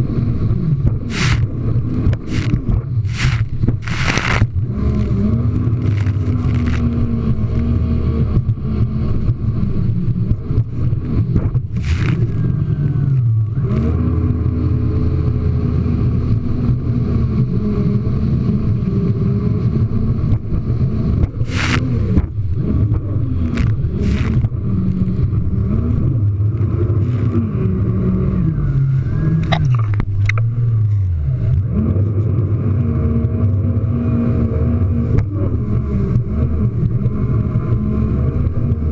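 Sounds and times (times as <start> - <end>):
jet ski engine running hard: 0.0 - 38.9
hull slapping on water: 29.4 - 30.6.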